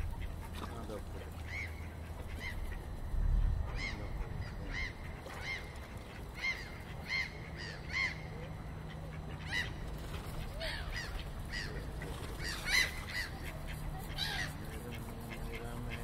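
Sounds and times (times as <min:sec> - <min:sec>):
water birds calling: 0:00.0 - 0:16.0
low rumble: 0:02.4 - 0:05.9.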